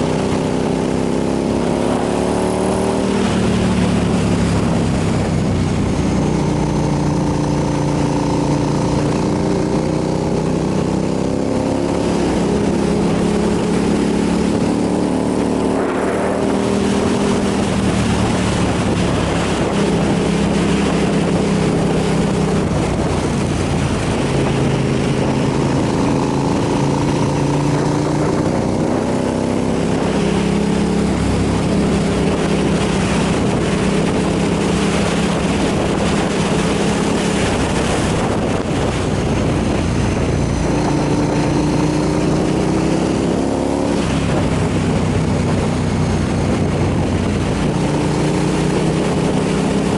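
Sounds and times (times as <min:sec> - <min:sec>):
motorcycle engine revving: 0:00.0 - 0:49.9
wind on microphone: 0:00.0 - 0:49.9.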